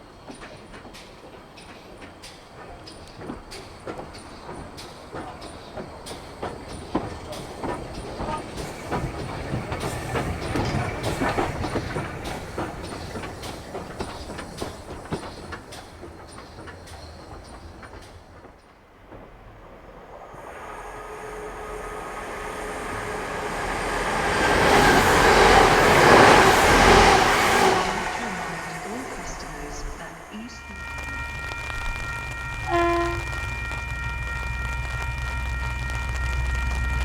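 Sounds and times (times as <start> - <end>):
train wheels clicking over rail joints: 0.0 - 37.0
rushing noise: 19.6 - 37.0.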